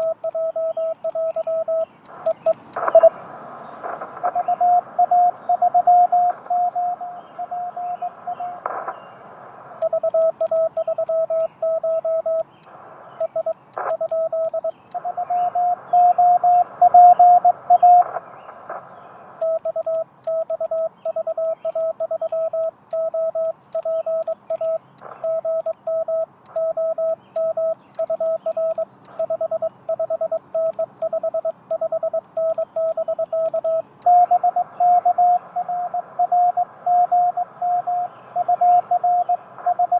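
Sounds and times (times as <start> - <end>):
morse key clicks: 0.0 - 3.0, 9.8 - 15.1, 19.4 - 34.2
morse code tone: 0.0 - 3.1, 9.8 - 18.1, 19.4 - 35.4
receiver hiss: 0.0 - 38.7.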